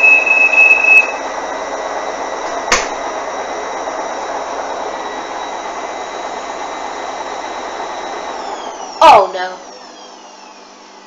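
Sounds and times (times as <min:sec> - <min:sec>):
washing machine drum spinning: 0:00.0 - 0:09.3
sharp knock: 0:02.7 - 0:03.0.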